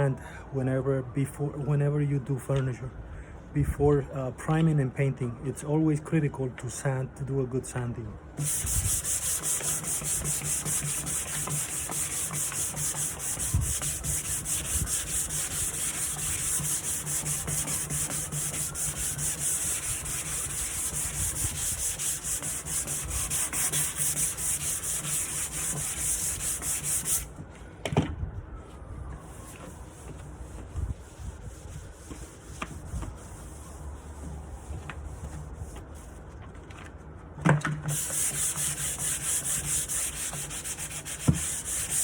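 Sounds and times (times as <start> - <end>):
sandpaper scrubbing wood: 8.4 - 27.3, 29.3 - 35.9, 37.9 - 42.0.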